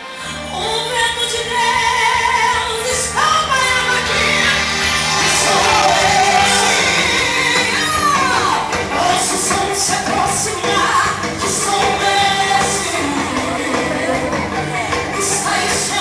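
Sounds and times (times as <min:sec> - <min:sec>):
recorded backing track: 0:00.0 - 0:16.0
woman singing gospel: 0:00.2 - 0:16.0.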